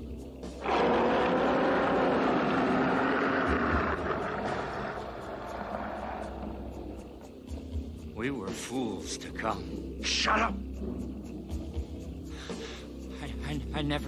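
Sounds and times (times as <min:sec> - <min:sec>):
dinosaur roar: 0:00.6 - 0:06.7.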